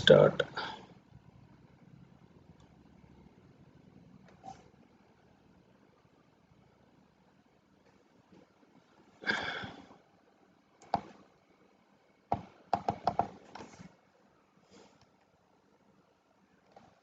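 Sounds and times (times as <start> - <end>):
keyboard keystrokes clicking: 12.3 - 13.4.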